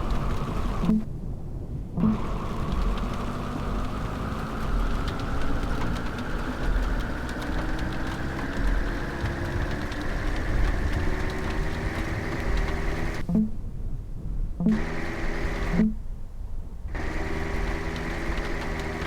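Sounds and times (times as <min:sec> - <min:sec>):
vehicle engine running: 0:00.0 - 0:01.1, 0:02.0 - 0:13.6, 0:14.6 - 0:16.0, 0:16.9 - 0:19.0
faint clicks: 0:02.0 - 0:13.5, 0:16.9 - 0:19.0.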